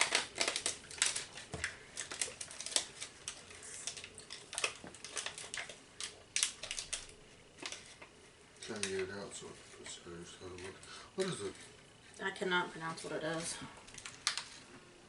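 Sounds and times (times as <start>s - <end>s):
plastic wrapper crackling: 0.0s - 9.3s, 13.8s - 14.6s.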